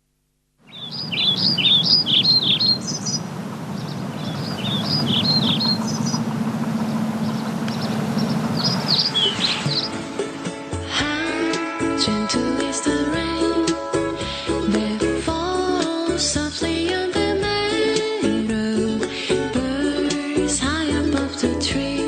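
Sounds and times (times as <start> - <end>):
birds singing chirping phrases: 0.6 - 10.1
steady rushing noise: 1.0 - 10.6.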